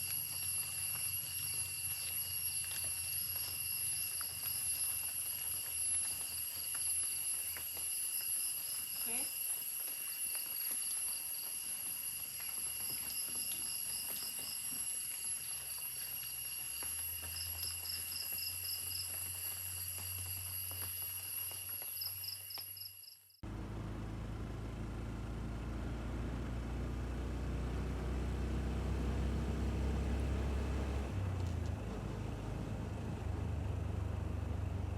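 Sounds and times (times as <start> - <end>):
vehicle engine droning: 0.0 - 8.8, 23.4 - 34.9
insects calling: 0.0 - 23.3
pulsing insect trill: 0.0 - 23.4.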